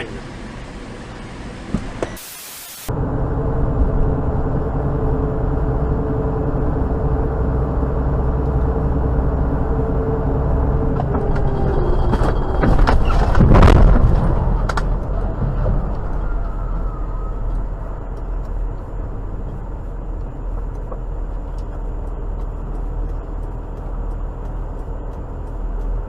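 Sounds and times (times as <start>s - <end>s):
car engine and road noise: 0.0s - 26.0s
loud crunch of collision: 12.6s - 15.0s.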